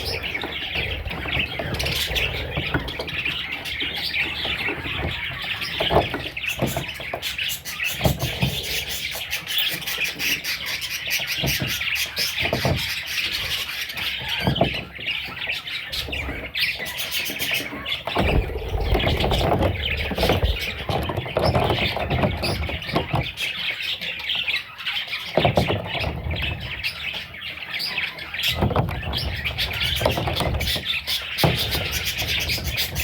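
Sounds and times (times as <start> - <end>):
baby parrots chirping and squawking: 0.0 - 33.0
rumbling handling noise: 17.6 - 23.5
low knocks: 18.1 - 22.5.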